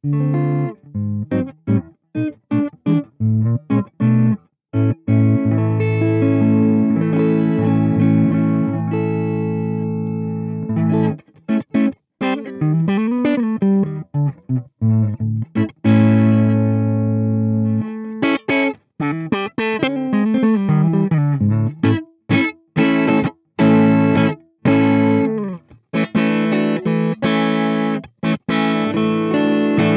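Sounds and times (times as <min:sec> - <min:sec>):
electric guitar chords: 0:00.0 - 0:29.9.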